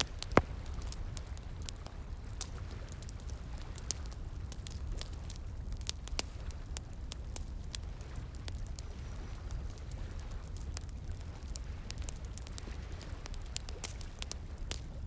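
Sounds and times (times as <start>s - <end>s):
wood fire crackling and popping: 0.0s - 4.0s.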